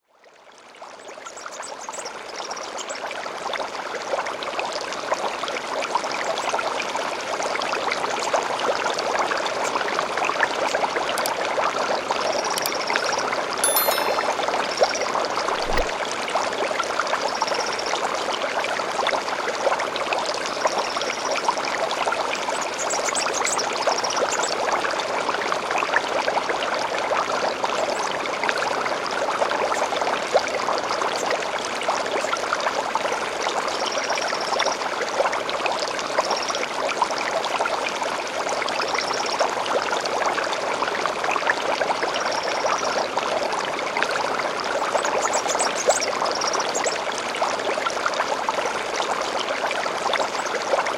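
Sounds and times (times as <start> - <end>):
stream bubbling and trickling: 0.0 - 50.9.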